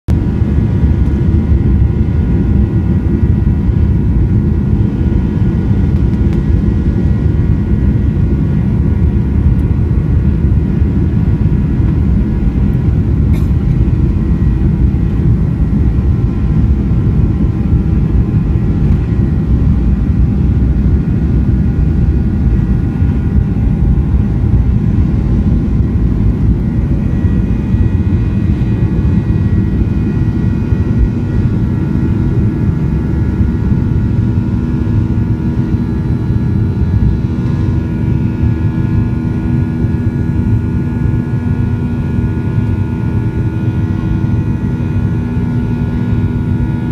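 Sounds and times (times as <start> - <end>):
jet engines deep rumble: 0.1 - 46.9
high whining engine tones: 0.6 - 46.8.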